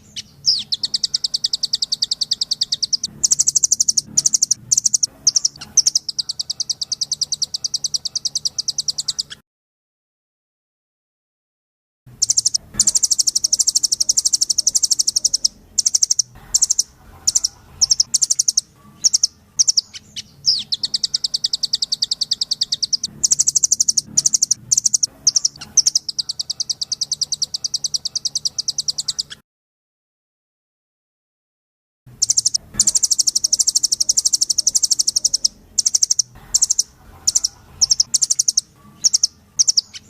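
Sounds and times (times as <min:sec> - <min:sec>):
nuthatch trilling song: 0:00.0 - 0:09.4, 0:12.1 - 0:29.4, 0:32.1 - 0:40.0.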